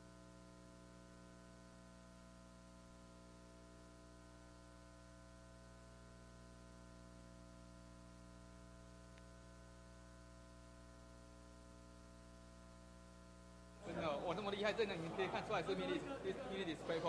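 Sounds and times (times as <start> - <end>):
electrical hum: 0.0 - 17.0
faint click: 9.1 - 9.3.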